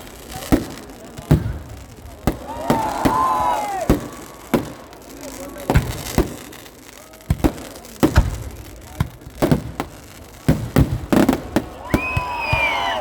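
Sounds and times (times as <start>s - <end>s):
firecrackers banging: 0.0s - 13.0s
voices calling out: 2.2s - 5.7s.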